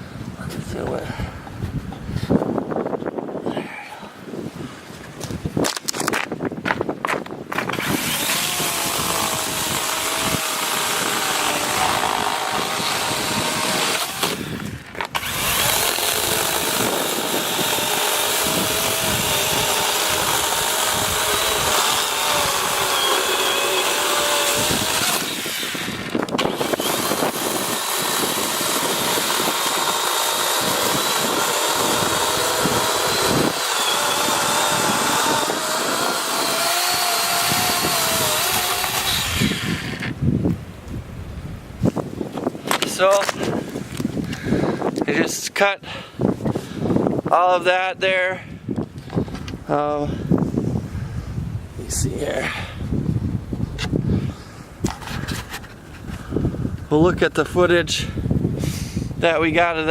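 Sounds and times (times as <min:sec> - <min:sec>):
chain tearing through wood: 0:05.6 - 0:06.3, 0:07.5 - 0:40.2
electric chainsaw motor whine: 0:07.7 - 0:40.2.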